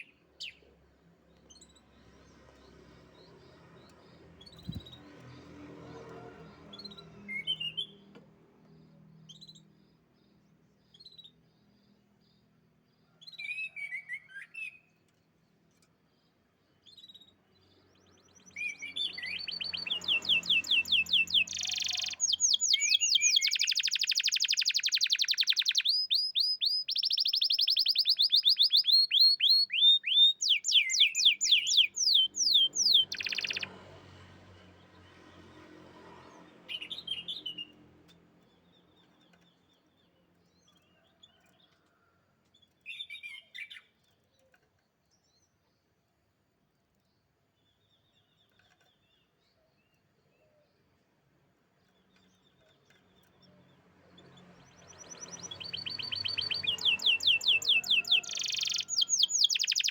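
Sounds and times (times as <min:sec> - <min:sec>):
canary chirps: 0:00.0 - 0:34.2, 0:36.3 - 0:46.0, 0:47.2 - 0:59.9
canary singing trills: 0:01.4 - 0:05.5, 0:16.8 - 0:33.9, 0:52.0 - 0:59.9.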